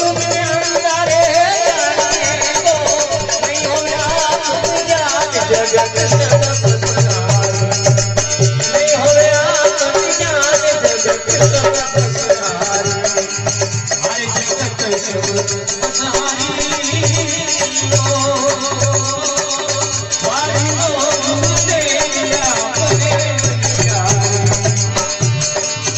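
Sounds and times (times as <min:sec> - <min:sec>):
jingling percussion: 0:00.0 - 0:25.9.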